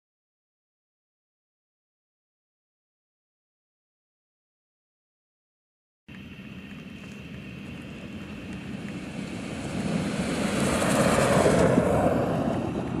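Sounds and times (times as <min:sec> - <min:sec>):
pickup engine rushing: 0:06.8 - 0:13.0.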